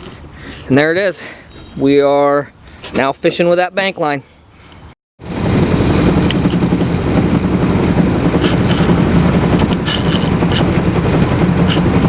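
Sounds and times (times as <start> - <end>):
boat motor running loudly: 5.2 - 12.0.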